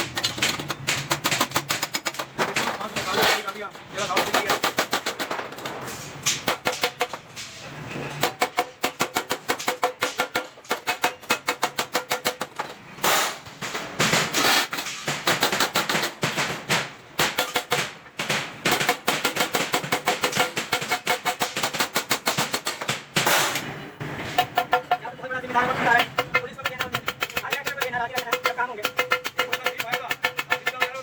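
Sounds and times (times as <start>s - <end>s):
hammering on steel sheet: 0.0s - 5.5s, 6.3s - 7.6s, 8.2s - 25.2s, 25.9s - 31.0s.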